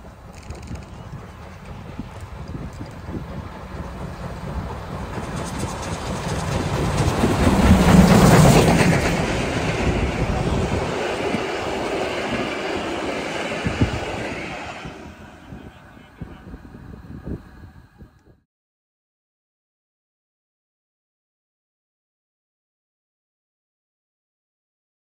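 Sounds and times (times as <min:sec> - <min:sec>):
wheels clicking over rail joints: 0:00.0 - 0:09.3
train rumble passing: 0:00.0 - 0:18.2.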